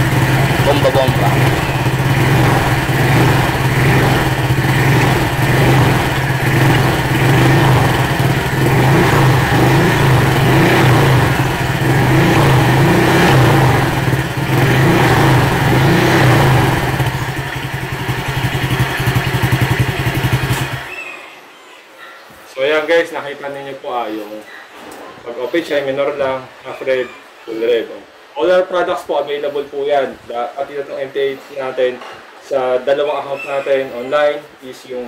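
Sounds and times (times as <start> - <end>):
scooter engine revving: 0.0 - 20.9.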